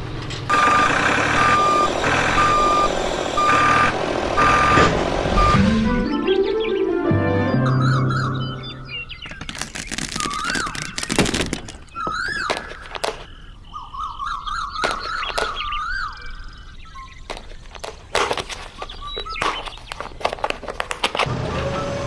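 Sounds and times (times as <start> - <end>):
rising whistle-like chirps: 5.4 - 9.2.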